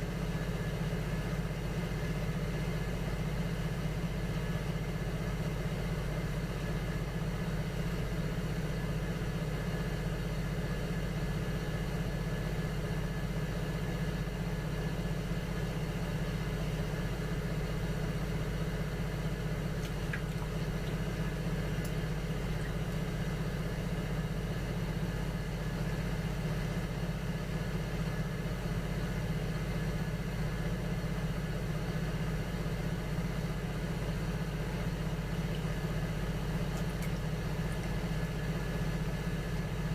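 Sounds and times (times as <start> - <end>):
potter's wheel motor humming: 19.0 - 24.8, 33.9 - 39.9.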